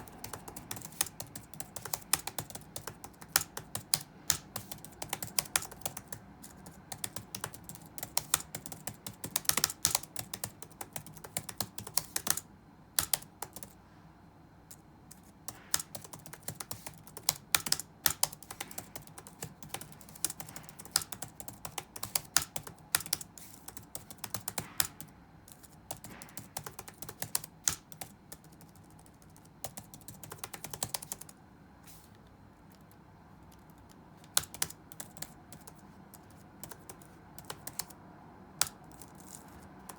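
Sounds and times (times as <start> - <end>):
faint room noise: 0.0 - 39.9
keyboard keystroke clicks: 32.7 - 38.0.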